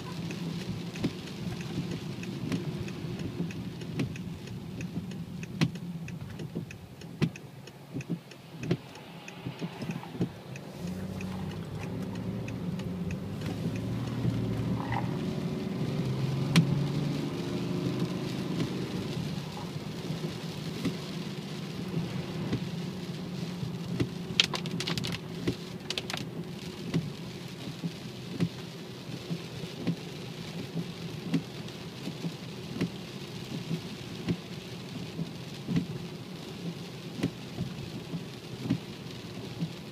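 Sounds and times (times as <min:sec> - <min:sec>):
car engine droning while driving: 0:00.0 - 0:39.9
ticks and clicks: 0:00.1 - 0:15.5, 0:24.0 - 0:26.3
even hiss: 0:07.3 - 0:15.2.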